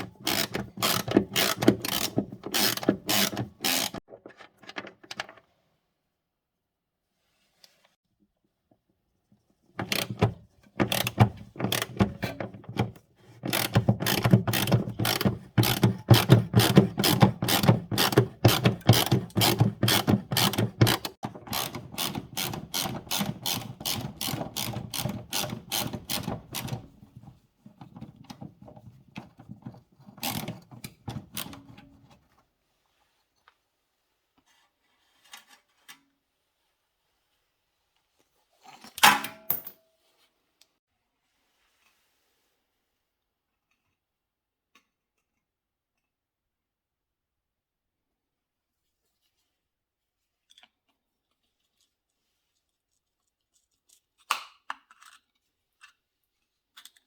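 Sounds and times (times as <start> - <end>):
ratchet wrench clicking: 0.3 - 4.0.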